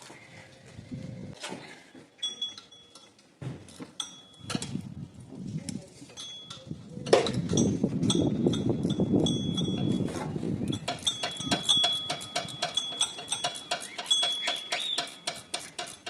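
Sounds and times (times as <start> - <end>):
metal tools clinking: 2.2 - 4.8, 6.1 - 16.0.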